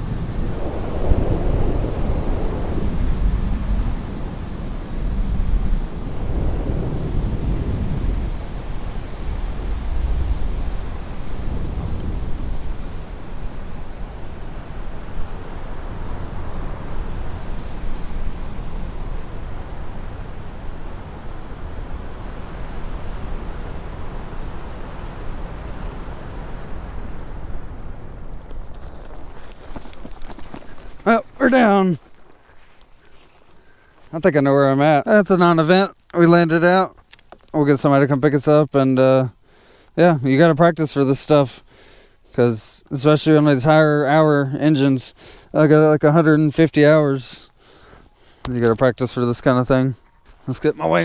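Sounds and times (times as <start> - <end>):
wind rushing over microphone: 0.0 - 34.8.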